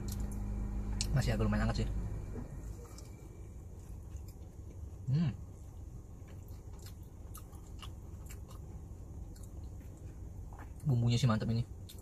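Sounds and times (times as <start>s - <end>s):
low hum: 0.0s - 10.8s
chewing with wet mouth clicks: 5.8s - 11.0s, 11.8s - 12.0s.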